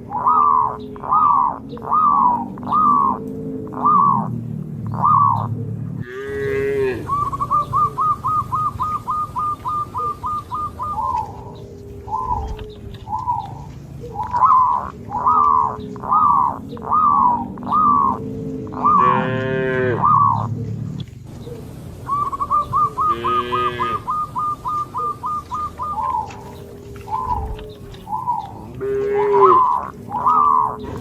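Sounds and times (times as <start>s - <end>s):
high repeated chirping calls: 0.0s - 31.0s
cow mooing: 6.0s - 7.5s, 15.4s - 20.4s, 22.9s - 24.2s, 26.2s - 31.0s.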